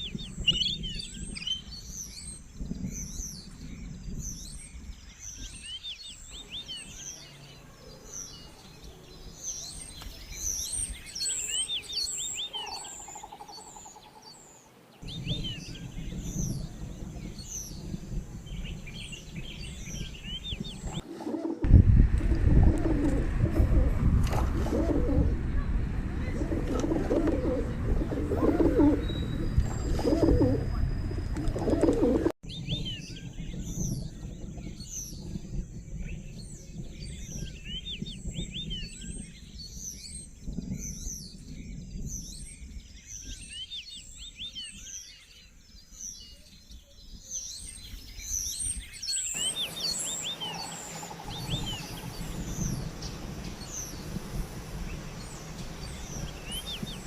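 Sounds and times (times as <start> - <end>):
small birds chirping: 0.0 - 21.6, 24.7 - 57.0
pigeon cooing: 21.0 - 21.7, 22.3 - 25.4, 26.3 - 32.3
steady hiss: 49.3 - 57.0.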